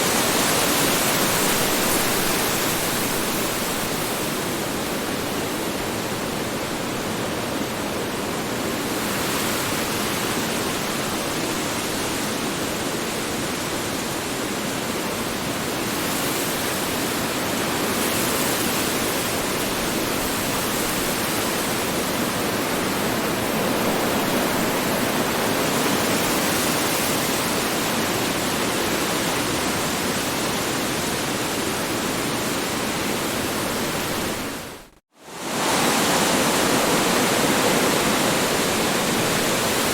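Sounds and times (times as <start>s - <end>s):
strong wind blowing: 29.6s - 39.9s.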